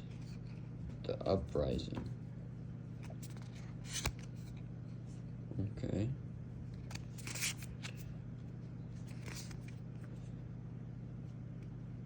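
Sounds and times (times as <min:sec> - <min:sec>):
low electrical hum: 0:00.0 - 0:12.0
cards sliding over cards: 0:03.0 - 0:04.6, 0:06.8 - 0:08.1, 0:09.0 - 0:10.2.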